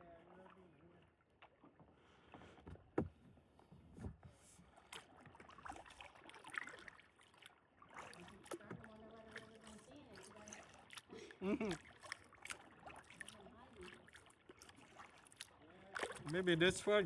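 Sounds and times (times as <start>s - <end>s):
kayak paddle strokes: 1.5s - 17.0s
water drips: 6.5s - 17.0s.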